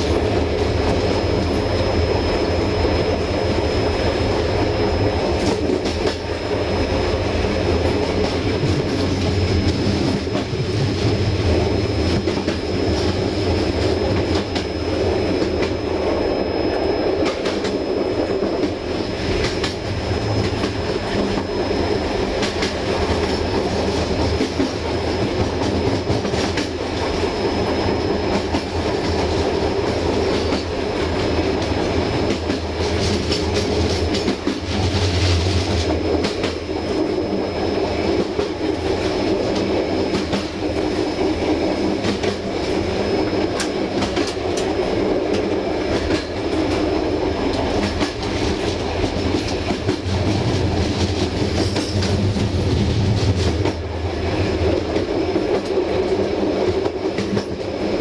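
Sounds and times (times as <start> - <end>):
faint high whine: 0.0 - 34.2
train coaches rumbling: 0.0 - 58.0.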